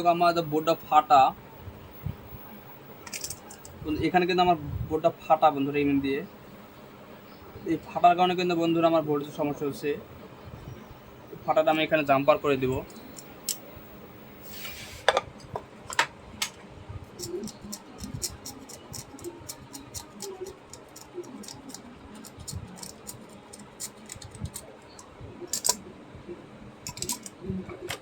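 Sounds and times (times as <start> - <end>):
small tools clicking and scraping: 3.1 - 3.8, 17.2 - 25.8, 26.9 - 27.4.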